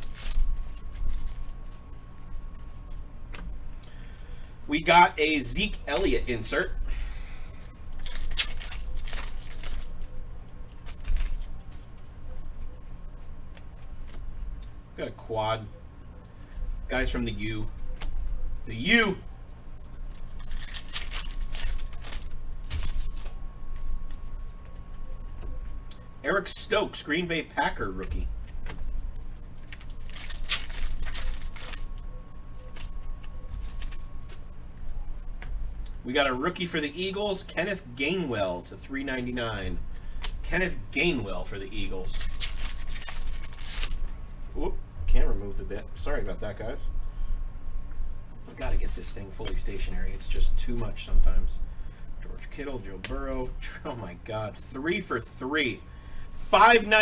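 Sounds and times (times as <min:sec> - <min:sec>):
cards and wrappers rustling: 0:00.0 - 0:03.0, 0:07.4 - 0:14.7, 0:16.4 - 0:25.8, 0:27.7 - 0:36.0, 0:39.2 - 0:44.5.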